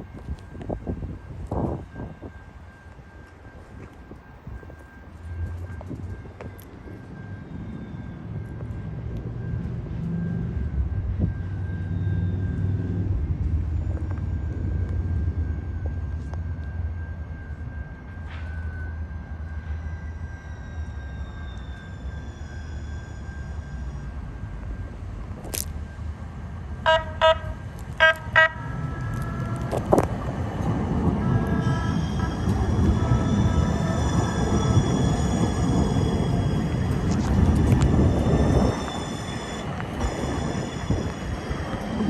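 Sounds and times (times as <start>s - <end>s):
steady high whine: 0.0s - 42.0s
street traffic rumble: 0.0s - 42.0s
trolley horn toots: 26.8s - 30.2s, 31.0s - 41.3s.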